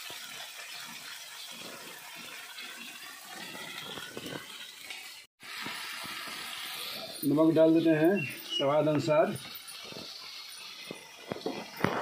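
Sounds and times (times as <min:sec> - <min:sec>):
spice paste sizzling in oil: 0:05.4 - 0:12.0.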